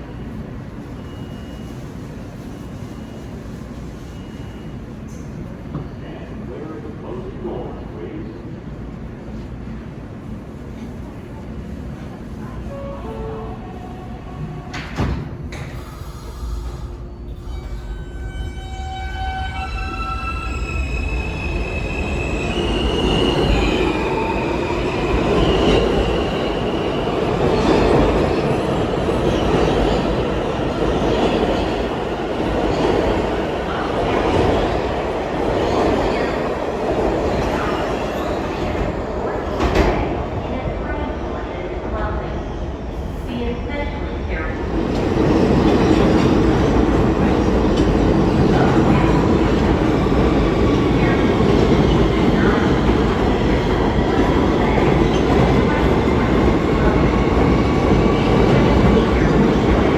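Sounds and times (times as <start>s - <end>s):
train wheels rumbling on track: 19.6s - 59.9s.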